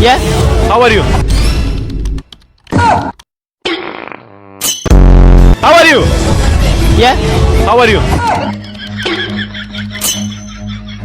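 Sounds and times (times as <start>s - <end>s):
loud burst with falling pitch: 4.9s - 5.6s.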